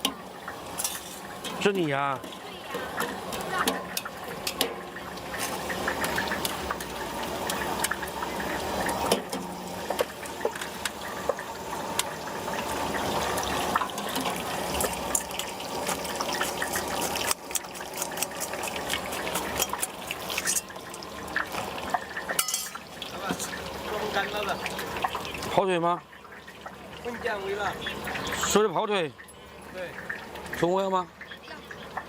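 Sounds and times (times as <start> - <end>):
tofu sizzling in hot oil: 0.0 - 25.6.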